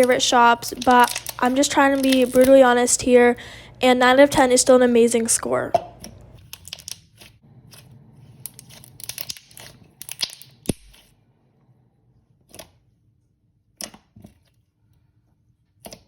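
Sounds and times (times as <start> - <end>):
slime crackling and popping: 0.0 - 2.6, 6.4 - 7.2, 8.4 - 11.1.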